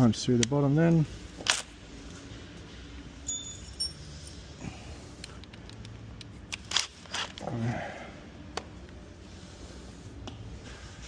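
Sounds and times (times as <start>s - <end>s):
metal tools clinking: 3.2s - 4.5s.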